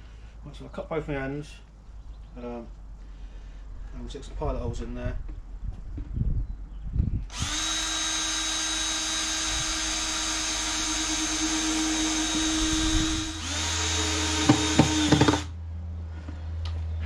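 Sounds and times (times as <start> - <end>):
power drill drilling into wood: 7.3 - 15.5.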